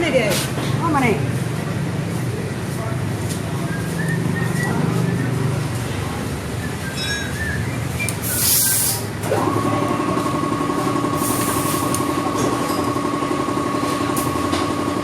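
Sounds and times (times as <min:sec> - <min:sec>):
short bursts of hiss: 0:08.2 - 0:09.2
machine humming: 0:09.2 - 0:15.0.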